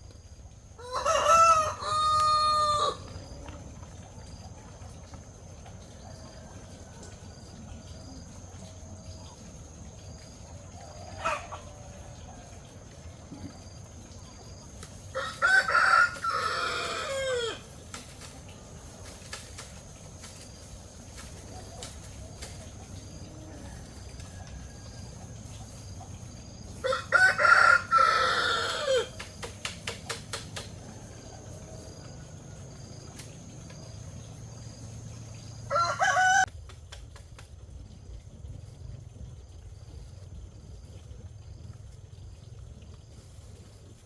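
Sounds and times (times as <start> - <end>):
rooster crowing: 0.8 - 3.4, 15.1 - 17.7, 26.5 - 29.2, 35.6 - 36.5.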